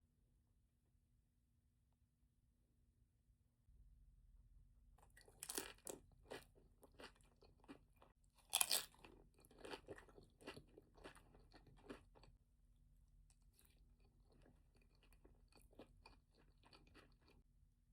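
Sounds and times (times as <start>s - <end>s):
person chewing crunchy food: 5.0s - 17.5s.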